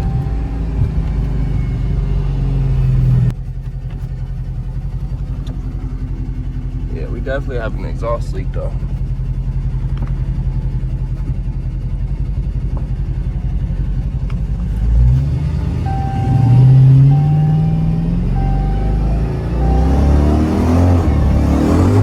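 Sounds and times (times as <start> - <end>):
chime beeps: 0.0 - 2.3, 15.9 - 21.9
car engine revving loudly: 14.7 - 22.0.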